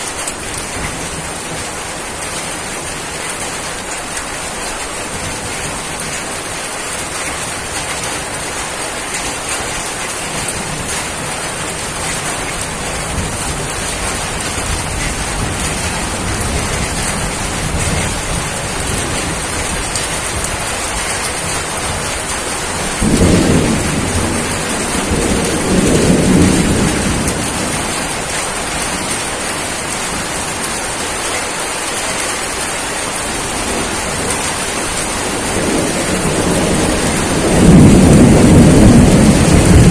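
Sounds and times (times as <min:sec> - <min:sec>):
heavy rain: 0:00.0 - 0:39.9
thunder rumbling: 0:10.4 - 0:30.6, 0:33.4 - 0:39.9.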